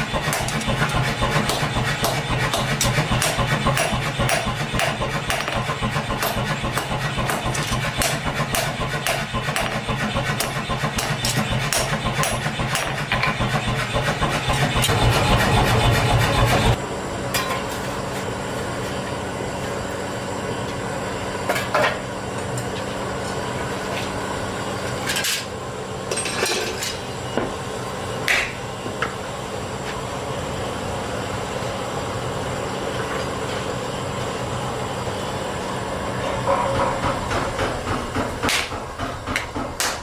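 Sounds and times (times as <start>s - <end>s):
hammer strikes: 0.0s - 16.7s, 36.4s - 40.0s
workshop machinery humming: 0.0s - 40.0s
metal clanks and knocks: 36.2s - 40.0s.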